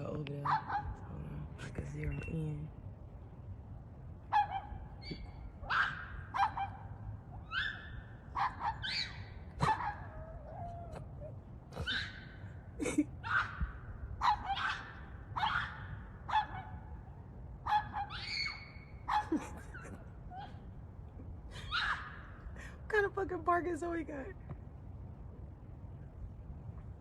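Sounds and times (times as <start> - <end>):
dog yelping screams: 4.3 - 12.4, 13.2 - 16.7, 17.6 - 20.6, 21.6 - 22.4.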